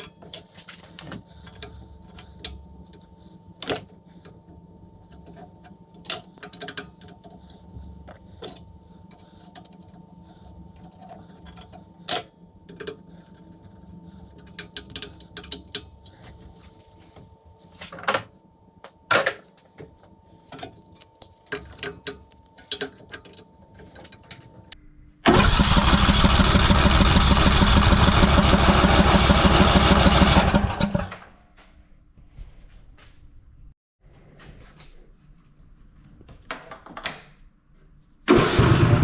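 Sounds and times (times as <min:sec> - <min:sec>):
riding mower engine turning over: 0:25.3 - 0:31.2, 0:38.3 - 0:39.0.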